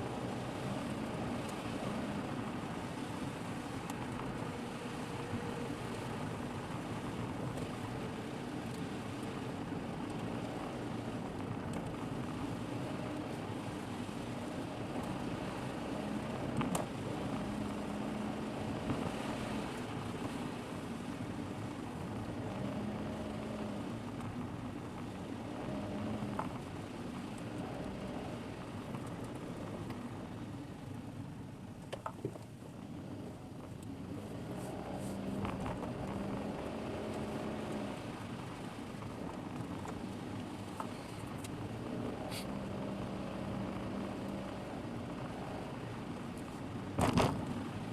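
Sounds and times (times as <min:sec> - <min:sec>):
car engine hum: 0:00.0 - 0:47.9
road noise: 0:00.0 - 0:47.9.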